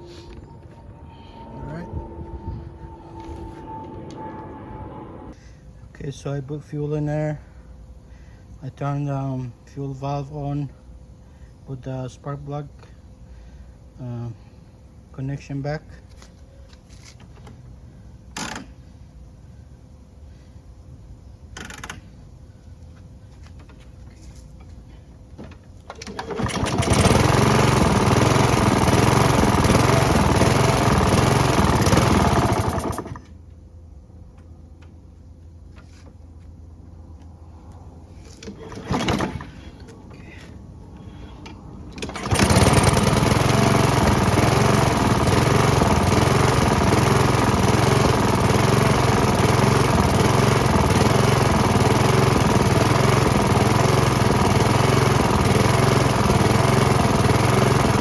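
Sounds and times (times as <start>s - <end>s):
lawn mower engine running: 0.0s - 5.4s, 25.5s - 33.4s, 38.2s - 58.0s.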